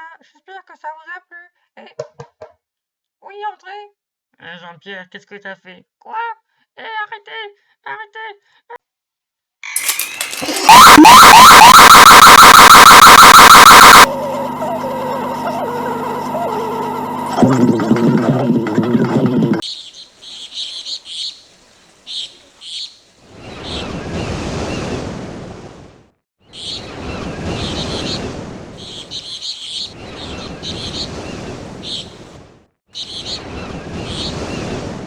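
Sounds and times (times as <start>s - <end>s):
surf washing in: 23.7s - 25.9s, 30.2s - 32.6s, 33.4s - 35.0s.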